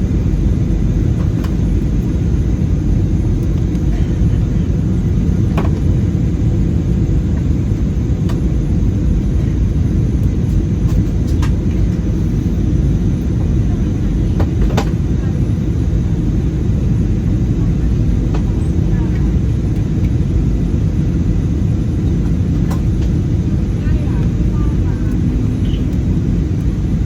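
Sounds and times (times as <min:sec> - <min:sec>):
airplane cabin engine rumble: 0:00.0 - 0:27.0
faint clicks of cabin fittings: 0:10.2 - 0:11.8.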